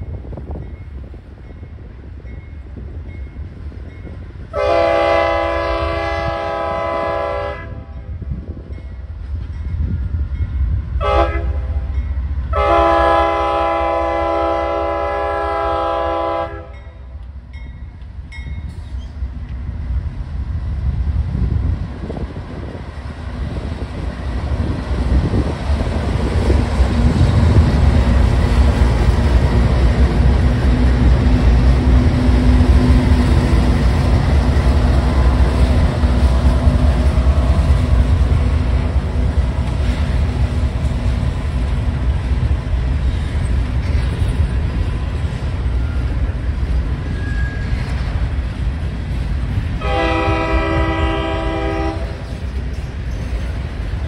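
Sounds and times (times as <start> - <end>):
diesel locomotives rumbling: 0.0 - 54.0
train horn: 4.5 - 8.2, 11.0 - 17.0, 49.8 - 52.4.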